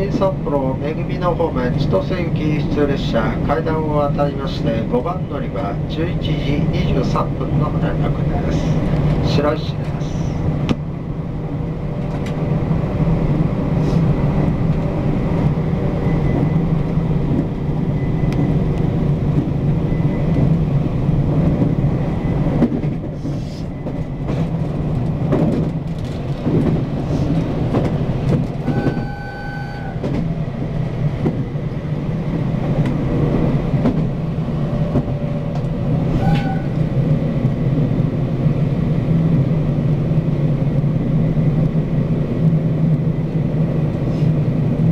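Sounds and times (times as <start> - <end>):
train rumbling on rails: 0.0 - 44.9
brief high tone: 28.6 - 30.0.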